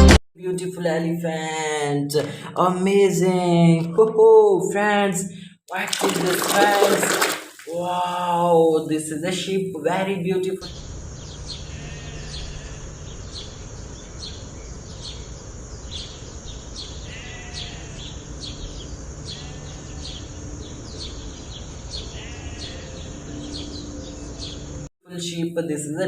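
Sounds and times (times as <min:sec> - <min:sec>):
birds chirping: 0:05.6 - 0:24.9.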